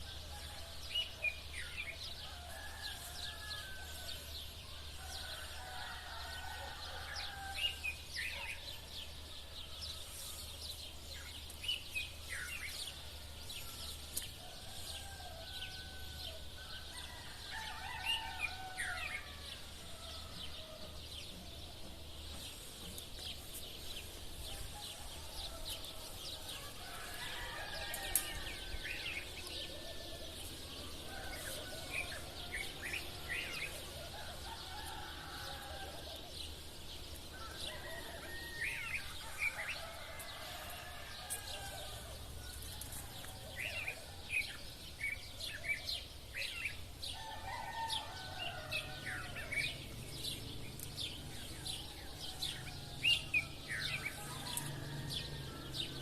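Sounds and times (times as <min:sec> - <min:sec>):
roosters crowing: 0:00.0 - 0:11.0, 0:12.0 - 0:56.0
sparrows chirping: 0:00.0 - 0:56.0.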